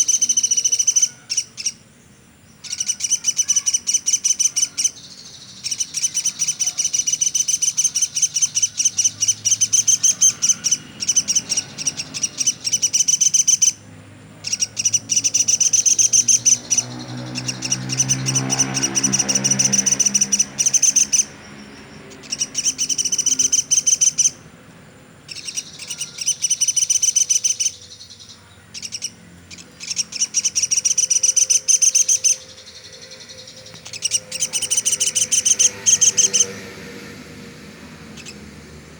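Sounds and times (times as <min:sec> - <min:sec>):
woodpecker rattling trills: 0:00.0 - 0:01.8, 0:02.6 - 0:13.8, 0:14.4 - 0:24.6, 0:25.2 - 0:38.9
low hum: 0:30.4 - 0:38.9.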